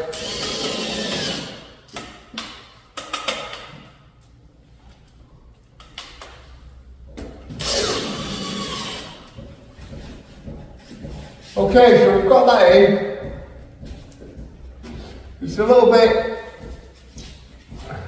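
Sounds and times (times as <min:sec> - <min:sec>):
power screwdriver running: 0:07.6 - 0:09.2.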